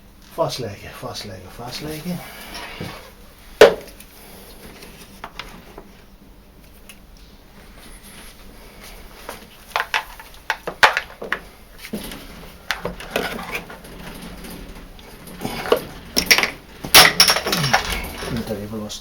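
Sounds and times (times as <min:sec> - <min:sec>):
clicks and knocks of hands working: 0:09.3 - 0:18.4.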